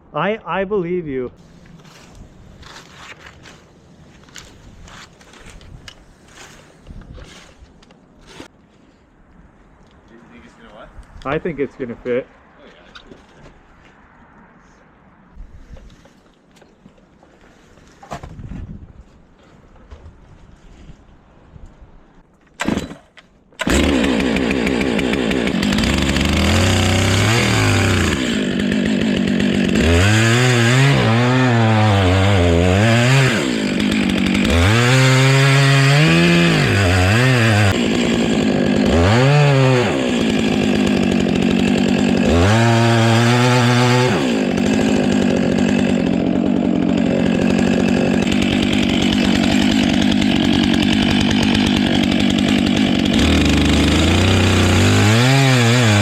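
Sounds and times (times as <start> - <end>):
two-stroke chainsaw running: 23.6 - 56.0.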